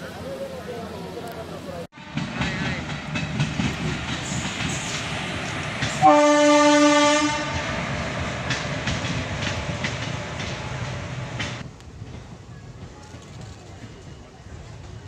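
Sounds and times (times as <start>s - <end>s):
train rumbling past: 1.6s - 15.0s
wheels clacking over rail joints: 2.1s - 14.1s
locomotive horn: 6.0s - 7.8s.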